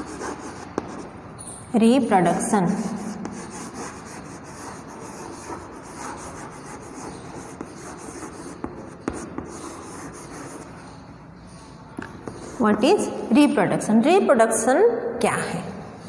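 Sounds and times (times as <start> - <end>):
pen scratching on surface: 0.0 - 1.1, 2.8 - 11.0.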